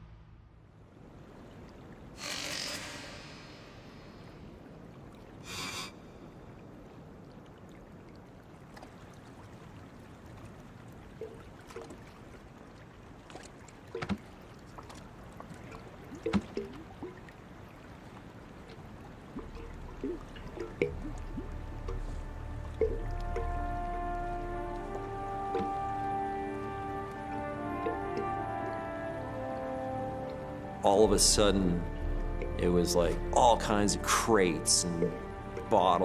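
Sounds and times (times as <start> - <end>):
water lapping against raft: 1.0 - 36.0
brief hiss: 2.2 - 4.2
knocks and creaks: 25.5 - 25.8.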